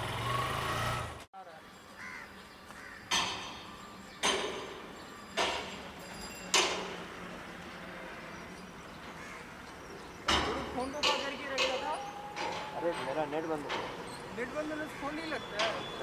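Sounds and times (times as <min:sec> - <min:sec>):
sharp ringing knocks: 0:03.0 - 0:07.2, 0:10.2 - 0:14.4, 0:15.0 - 0:16.0.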